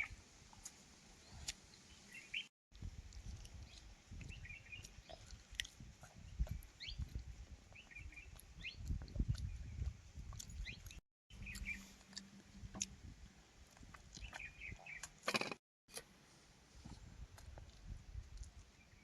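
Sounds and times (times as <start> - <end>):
small birds chirping: 0.0 - 2.5, 3.1 - 12.9, 13.7 - 15.6
chewing and squelching food: 2.8 - 13.0, 13.6 - 15.6, 16.8 - 18.9.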